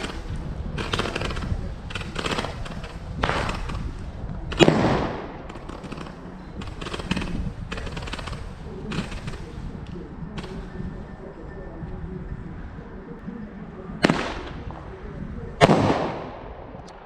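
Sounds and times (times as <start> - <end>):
fireworks crackling bursts: 0.0 - 17.0
firework bang: 15.6 - 16.8.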